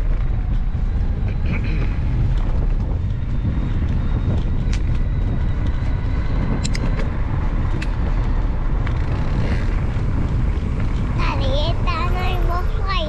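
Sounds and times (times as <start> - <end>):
bike rolling rumble: 0.0 - 13.0
wind buffeting microphone: 0.0 - 13.0
sharp clicks: 3.8 - 11.1.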